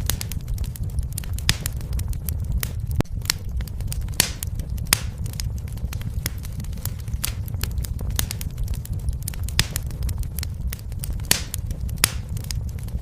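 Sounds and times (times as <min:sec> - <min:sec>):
fireplace fire crackling: 0:00.0 - 0:13.0.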